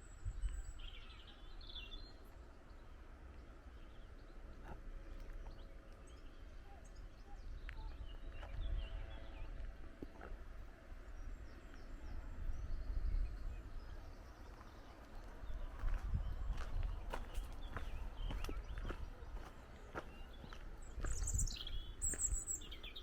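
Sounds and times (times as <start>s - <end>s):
wind buffeting microphone: 0.0s - 1.8s, 7.0s - 23.0s
small birds chirping: 0.0s - 23.0s.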